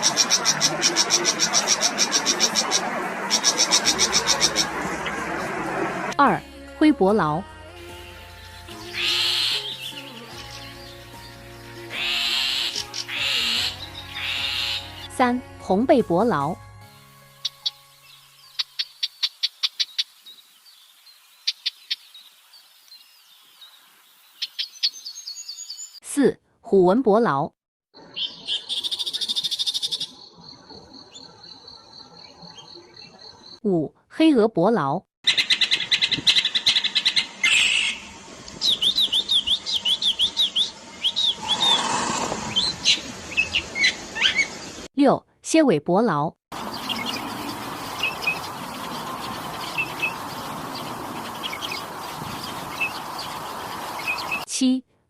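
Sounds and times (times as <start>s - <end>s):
bird singing harsh chattering notes: 35.3s - 44.6s, 46.6s - 54.5s.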